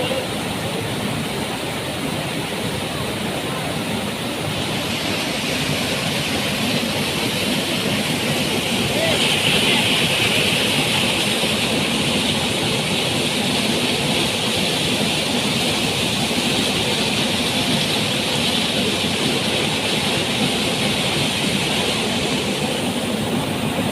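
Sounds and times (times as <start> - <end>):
waterfall roaring: 0.0 - 23.9.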